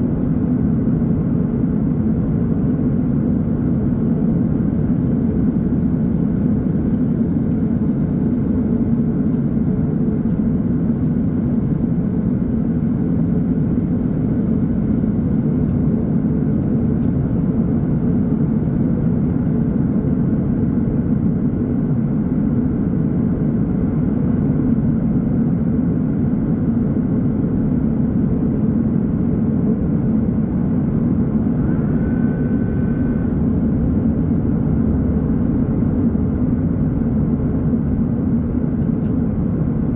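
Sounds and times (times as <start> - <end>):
aircraft cabin drone: 0.0 - 39.9
brief high tone: 31.6 - 33.4.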